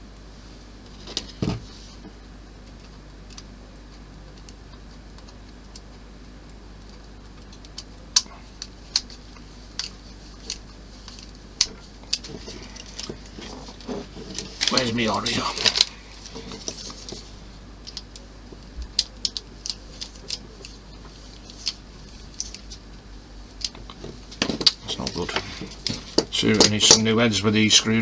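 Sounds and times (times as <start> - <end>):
plastic model parts handled: 8.6 - 22.8, 23.6 - 27.0.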